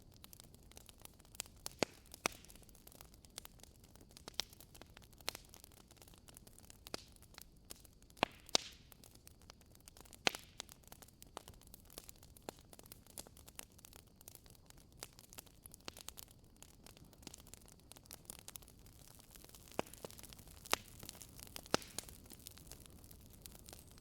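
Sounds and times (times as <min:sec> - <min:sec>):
wood fire crackling: 0:00.0 - 0:24.0
fire hissing: 0:18.1 - 0:24.0.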